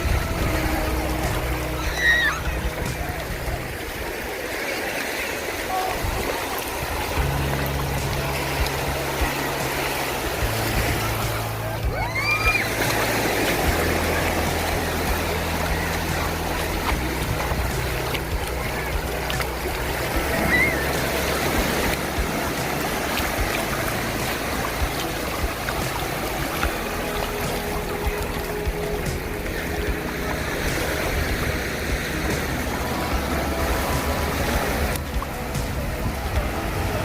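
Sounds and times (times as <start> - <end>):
background music low notes: 0.0 - 4.6, 5.5 - 37.0
waves washing onto beach: 0.0 - 37.0
high rising calls: 8.2 - 16.5.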